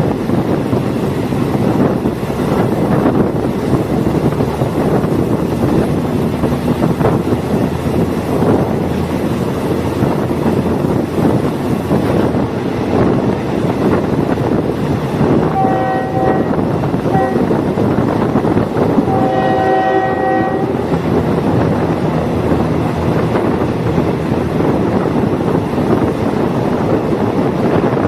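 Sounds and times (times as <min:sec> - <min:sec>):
train rumbling on rails: 0:00.0 - 0:28.0
wind noise: 0:00.0 - 0:28.0
train horn: 0:15.5 - 0:17.7, 0:19.0 - 0:21.0.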